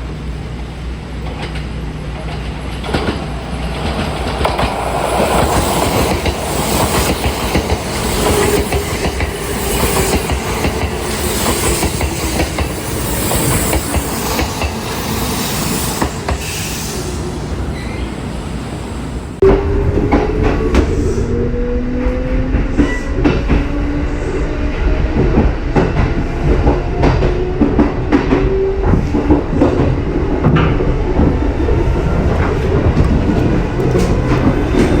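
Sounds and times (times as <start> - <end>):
train wheels clacking over rail joints: 1.2 - 16.7, 32.2 - 35.0.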